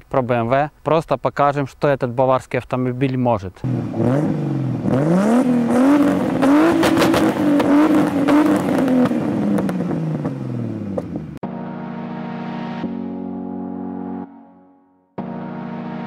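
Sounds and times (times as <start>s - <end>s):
car engine revving: 3.6s - 11.4s
music with held synth tones: 11.4s - 16.0s.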